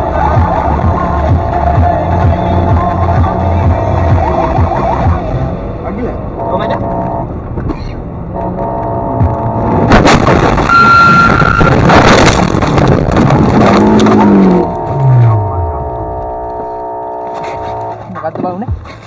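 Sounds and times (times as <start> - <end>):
loud rushing noise: 9.2 - 15.8
sudden bang: 9.3 - 15.4
short steady tone: 14.3 - 18.0.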